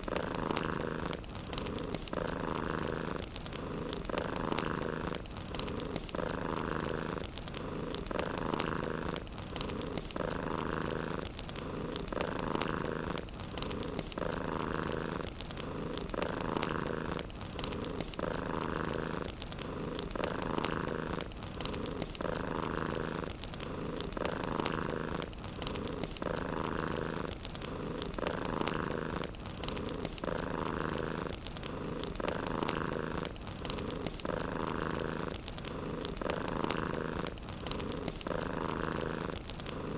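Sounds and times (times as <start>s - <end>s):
cat purring: 0.0s - 39.9s
fireplace crackling: 0.0s - 39.9s.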